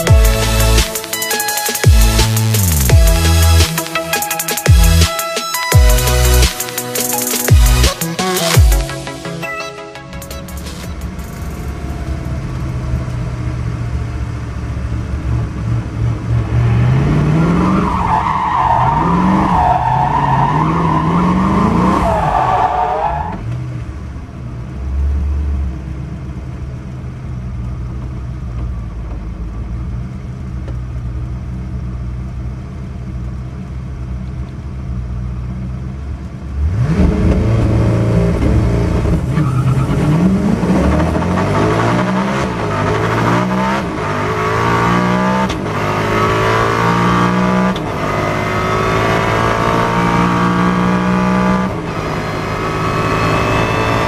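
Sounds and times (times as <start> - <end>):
car engine revving: 0.0 - 9.4, 10.0 - 23.9, 35.8 - 54.0.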